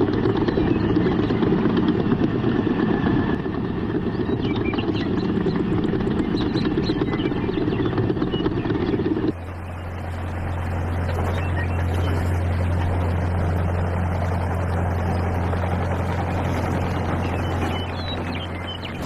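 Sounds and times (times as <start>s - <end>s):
small motor running: 4.7s - 19.0s.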